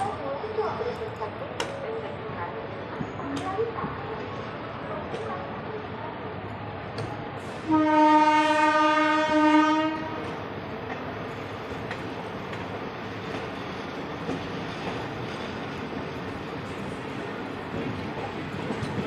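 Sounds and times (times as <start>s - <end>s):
moving train running noise: 0.0s - 19.0s
train horn blast: 7.6s - 10.3s.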